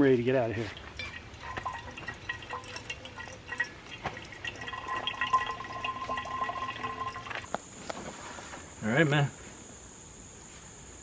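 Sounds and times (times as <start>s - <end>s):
water trickling and dripping: 0.0s - 7.5s.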